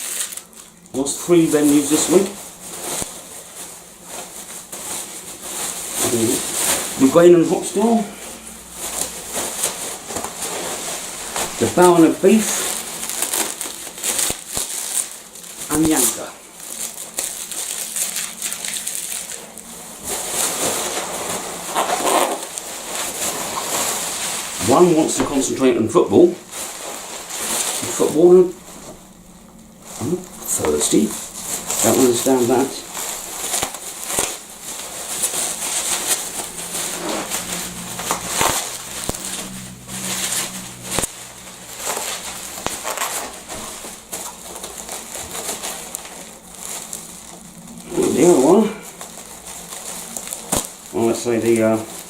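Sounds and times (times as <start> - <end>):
packing material rustling: 0.0 - 52.0.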